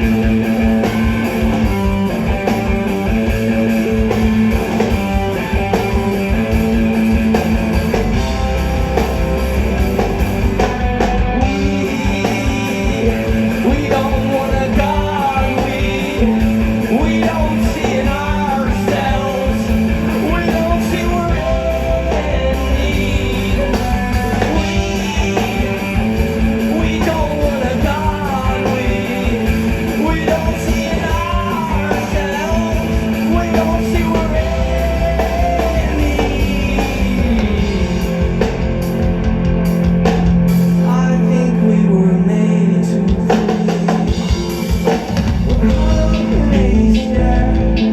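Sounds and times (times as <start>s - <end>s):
bass guitar: 0.0s - 47.9s
drums: 0.0s - 47.9s
electric guitars: 0.0s - 47.9s
person singing: 11.4s - 38.4s, 45.6s - 47.9s.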